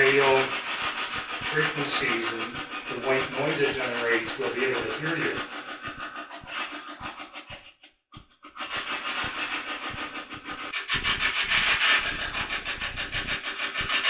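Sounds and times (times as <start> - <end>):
chopped radio static: 0.0 - 6.0.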